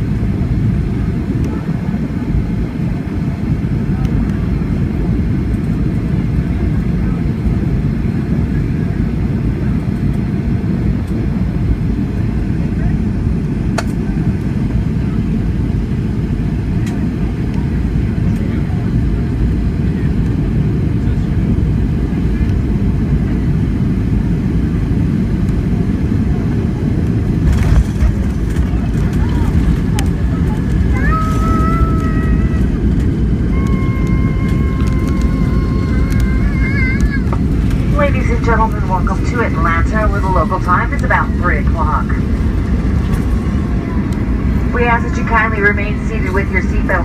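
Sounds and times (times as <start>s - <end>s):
airliner cabin rumble: 0.0s - 47.0s
rattles and clicks: 27.4s - 31.4s.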